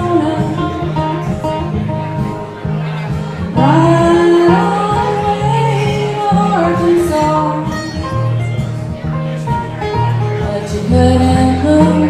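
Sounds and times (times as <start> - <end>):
woman singing: 0.0 - 1.0, 3.6 - 8.1, 10.4 - 12.0
acoustic guitar: 0.0 - 12.0
bass line: 0.0 - 12.0.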